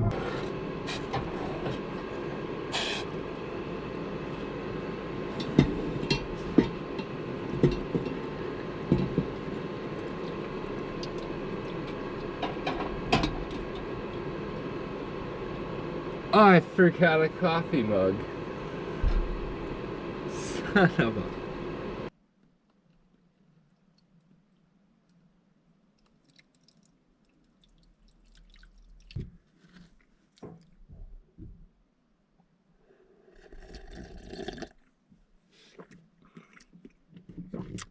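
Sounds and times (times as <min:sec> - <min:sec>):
steady background hum: 0:00.0 - 0:26.2.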